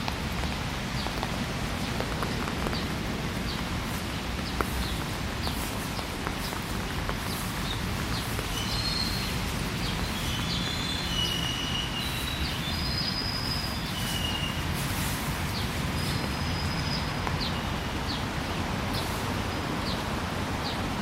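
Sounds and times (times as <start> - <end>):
city traffic rumble: 0.0 - 21.0
songbirds whistling: 7.2 - 14.8, 15.5 - 18.2.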